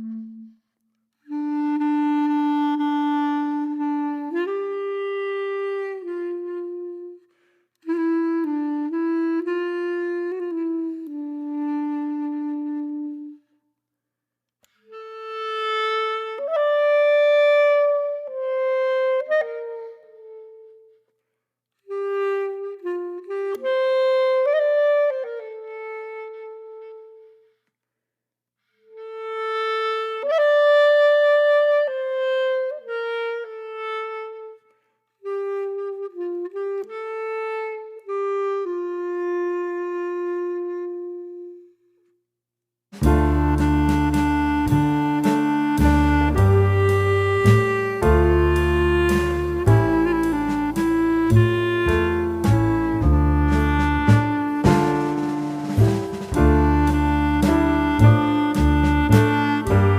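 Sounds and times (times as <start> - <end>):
slow solo woodwind melody: 0.0 - 13.6, 14.6 - 21.2, 21.8 - 27.7, 28.7 - 42.2, 43.0 - 59.9.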